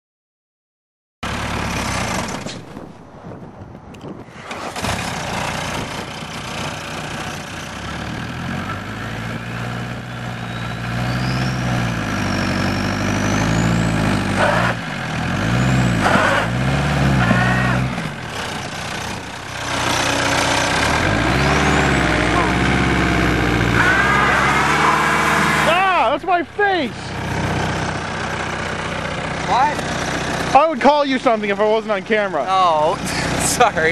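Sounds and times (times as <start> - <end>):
diesel engine revving: 1.2 - 3.0, 4.2 - 33.9
high turbo whistle: 10.0 - 14.8, 23.1 - 26.2.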